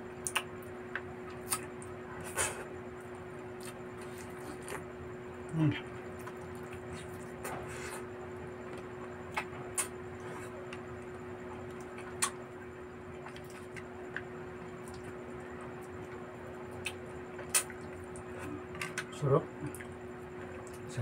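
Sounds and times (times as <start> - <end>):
person chewing crunchy food: 3.5 - 4.9, 6.1 - 8.1, 13.1 - 14.2.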